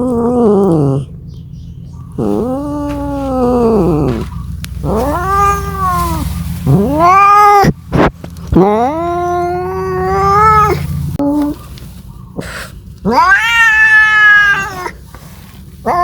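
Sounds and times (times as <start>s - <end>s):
cat yowling: 2.2s - 7.8s, 8.6s - 11.5s, 13.0s - 15.0s.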